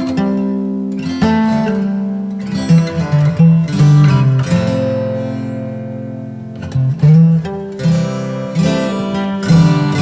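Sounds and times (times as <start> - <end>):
plucked guitar: 0.0 - 10.0.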